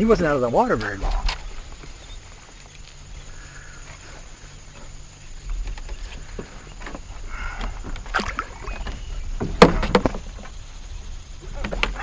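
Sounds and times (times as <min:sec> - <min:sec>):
knocks on boat: 0:09.4 - 0:10.6.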